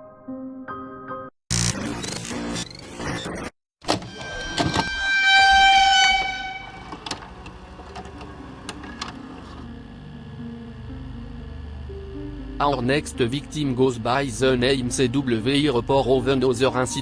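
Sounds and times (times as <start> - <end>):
horn-like honk: 3.9 - 8.2.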